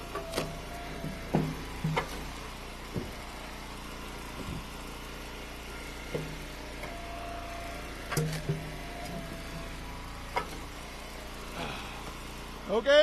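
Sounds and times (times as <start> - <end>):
log splitter engine running: 0.0 - 13.0
firewood knocking and clattering: 0.1 - 3.4, 4.4 - 4.7.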